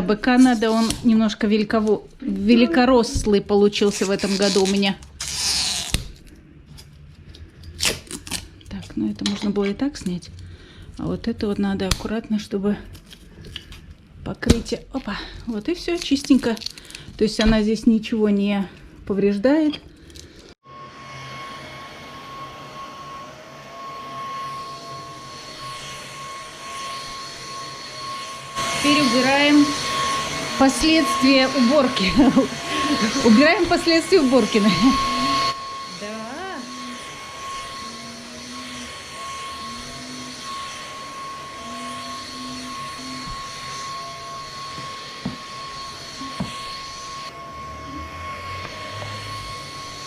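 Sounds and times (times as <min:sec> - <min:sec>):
cordless vacuum cleaner running: 0:20.6 - 0:50.0.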